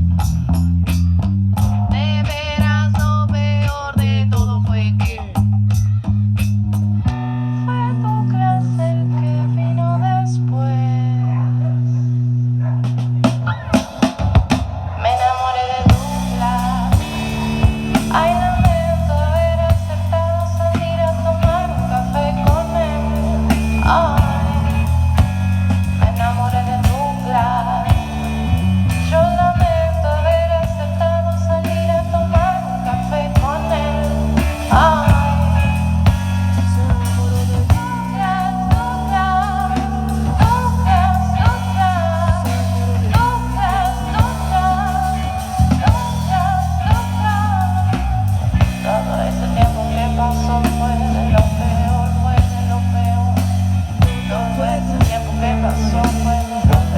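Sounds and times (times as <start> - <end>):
bass guitar notes: 0.0 - 56.9
drum kit: 12.8 - 56.9
bending lead guitar melody: 15.9 - 56.9.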